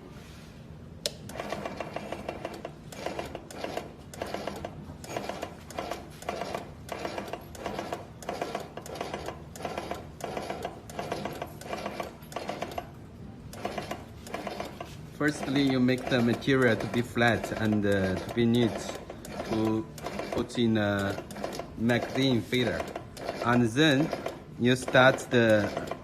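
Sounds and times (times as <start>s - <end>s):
machine clattering clicks: 15.3s - 26.0s.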